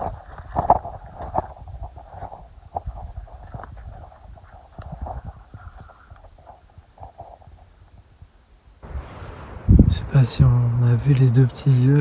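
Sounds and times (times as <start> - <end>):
cracks and rustles in undergrowth: 0.0 - 11.9
wild boars grunting: 8.8 - 12.0.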